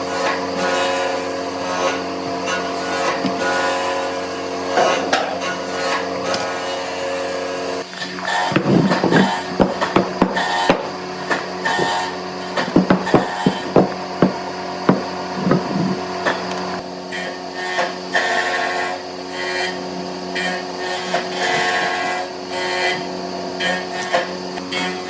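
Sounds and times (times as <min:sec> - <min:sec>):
power tool humming: 0:07.8 - 0:16.8
rasping on wood: 0:08.2 - 0:16.1
sharp knocks: 0:08.5 - 0:16.1.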